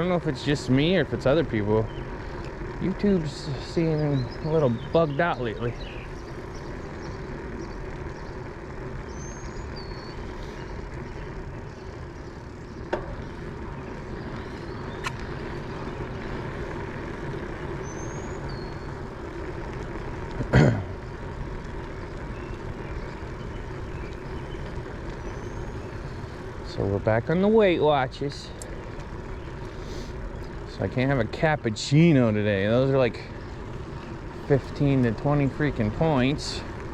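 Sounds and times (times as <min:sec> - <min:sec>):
road and traffic noise: 0:00.0 - 0:36.9
faint high bird chirps: 0:09.1 - 0:16.0.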